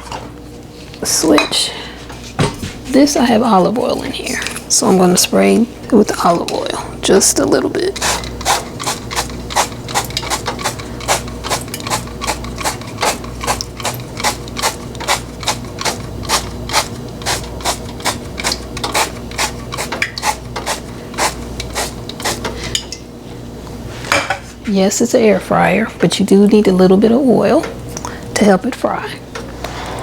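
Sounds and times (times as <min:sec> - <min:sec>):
steady low hum: 0:00.0 - 0:30.0
oil sprayer spritzing: 0:08.0 - 0:22.5.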